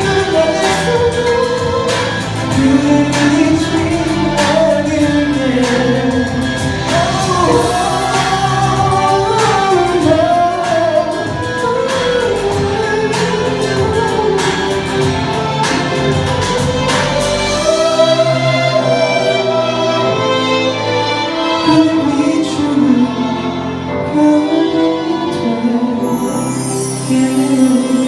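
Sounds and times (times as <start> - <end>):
slow drum beat: 0.0 - 17.5
person singing pop ballad: 0.0 - 28.0.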